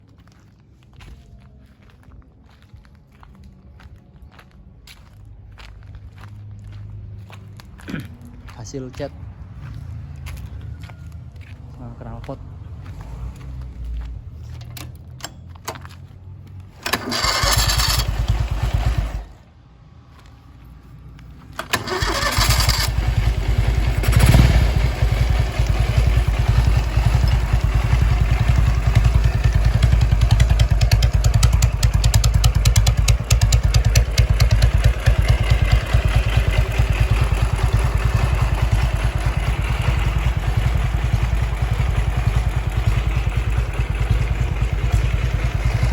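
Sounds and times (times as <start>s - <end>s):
motorcycle engine revving: 16.7s - 19.4s, 21.6s - 45.9s
engine cranking: 16.8s - 19.4s, 21.6s - 45.9s
motorcycle engine idling: 16.8s - 19.4s, 21.6s - 45.9s.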